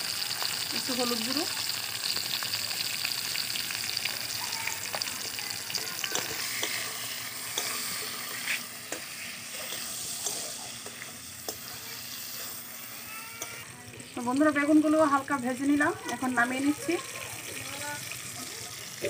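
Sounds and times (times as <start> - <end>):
eggplant sizzling in oil: 0.0 - 19.0.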